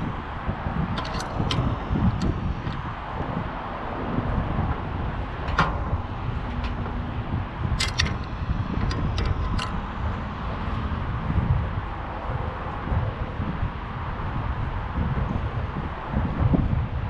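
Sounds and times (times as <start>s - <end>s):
wind rumbling on microphone: 0.0s - 17.0s
sharp clicks and taps: 7.8s - 9.9s.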